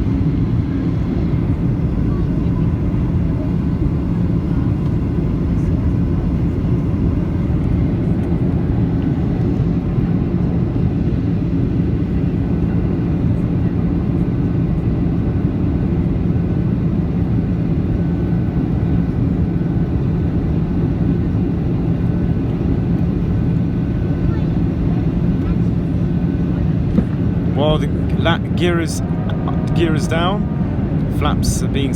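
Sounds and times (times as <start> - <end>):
airplane cabin engine rush: 0.0 - 31.9
low hum: 26.6 - 31.9.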